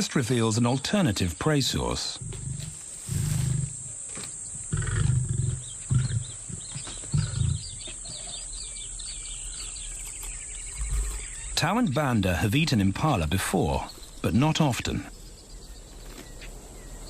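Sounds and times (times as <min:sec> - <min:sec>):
birds chirping: 0:00.0 - 0:17.0
insects humming: 0:00.0 - 0:17.0
lion grunting: 0:01.8 - 0:04.0, 0:04.6 - 0:08.5.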